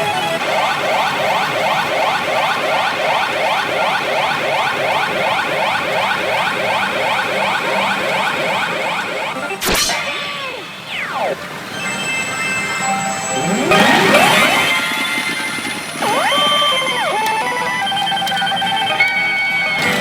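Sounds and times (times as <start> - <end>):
falling electronic tones: 0.0 - 19.4
rising electronic chirps: 0.3 - 18.9
electronic crash: 7.0 - 17.2.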